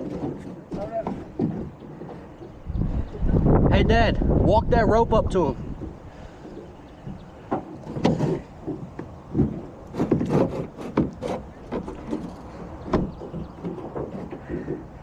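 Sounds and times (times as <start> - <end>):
knocks and thuds against boat: 0.0 - 2.7, 5.7 - 15.0.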